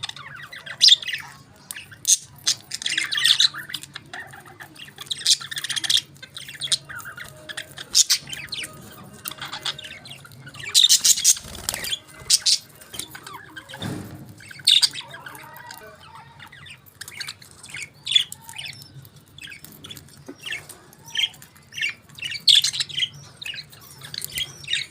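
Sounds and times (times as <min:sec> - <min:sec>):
budgerigars chirping and squawking: 0:00.0 - 0:24.9.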